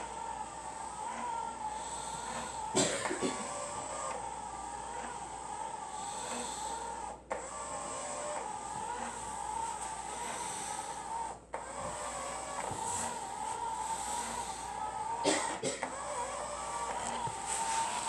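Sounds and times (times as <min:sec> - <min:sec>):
robot mop motor whining: 0:00.0 - 0:15.2, 0:15.8 - 0:18.0.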